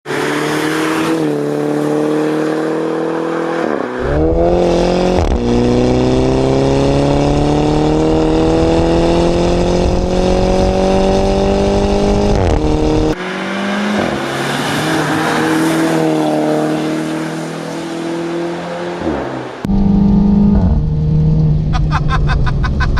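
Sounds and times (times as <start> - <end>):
turbo car engine accelerating: 4.0 - 14.1, 19.6 - 22.9.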